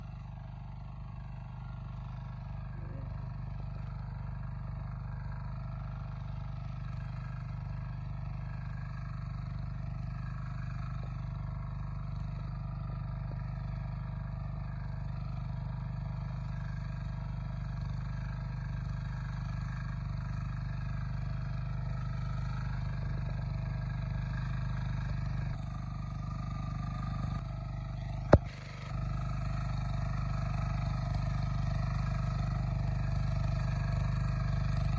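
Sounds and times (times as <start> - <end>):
tractor engine droning: 0.0 - 0.5, 21.0 - 34.9.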